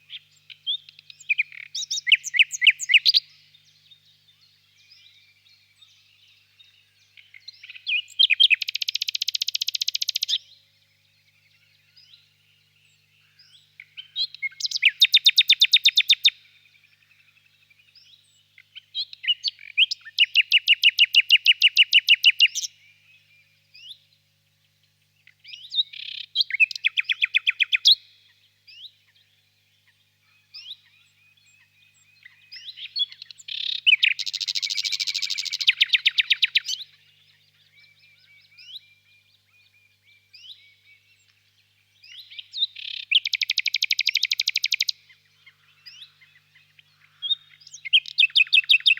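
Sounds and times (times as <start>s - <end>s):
nightingale singing: 0.0s - 24.2s, 25.2s - 48.9s
faint bird chirps: 0.0s - 48.9s.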